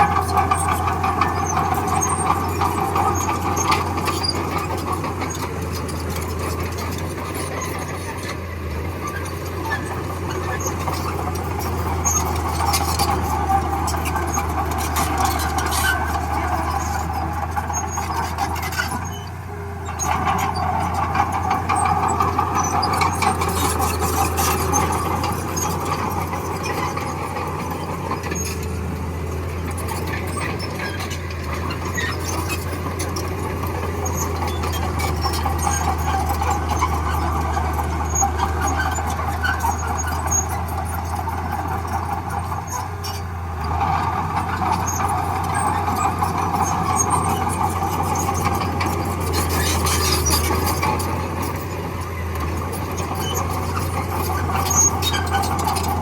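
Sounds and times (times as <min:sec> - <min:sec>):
bulldozer diesel engine: 0:00.0 - 0:56.0.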